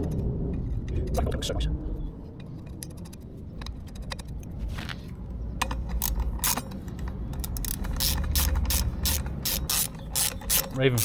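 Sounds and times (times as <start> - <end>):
socket ratchet clicking: 5.6 - 11.0.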